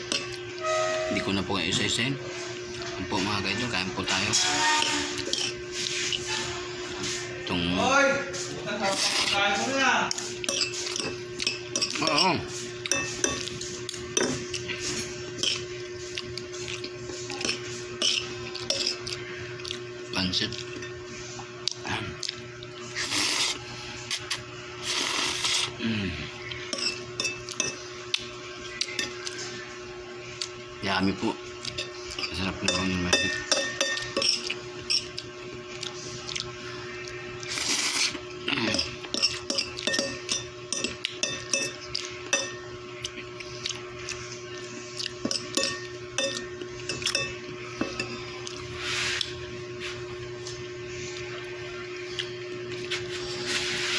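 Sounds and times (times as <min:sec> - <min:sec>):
cutlery scraping on a plate: 0:00.0 - 0:01.3, 0:02.8 - 0:07.3, 0:08.9 - 0:19.2, 0:26.7 - 0:27.9, 0:31.7 - 0:35.3, 0:37.6 - 0:42.7, 0:45.1 - 0:50.1
cutlery clinking on plate: 0:17.4 - 0:19.1, 0:26.8 - 0:27.8, 0:31.8 - 0:35.2, 0:38.6 - 0:42.7, 0:45.2 - 0:48.3.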